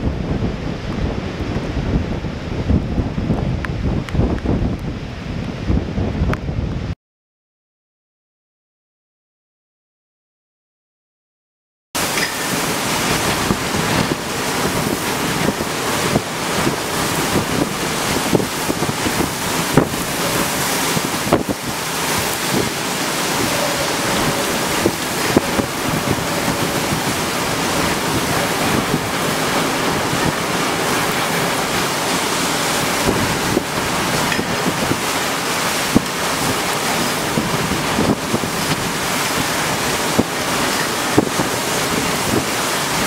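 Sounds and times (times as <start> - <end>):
rough sea rushing: 0.0 - 6.9, 12.0 - 43.0
storm wind: 0.0 - 7.0, 12.0 - 43.0
wind buffeting microphone: 0.0 - 7.0, 12.0 - 43.0.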